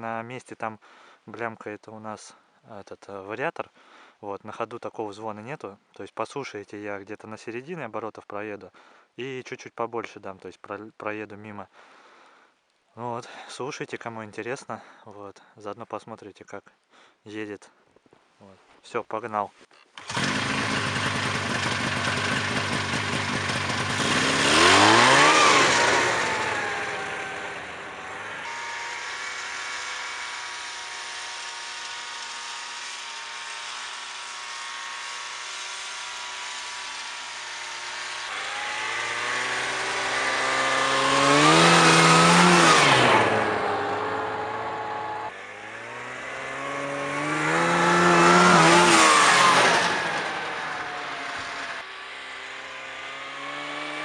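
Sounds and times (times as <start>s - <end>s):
snowmobile engine driving past: 20.0s - 54.0s.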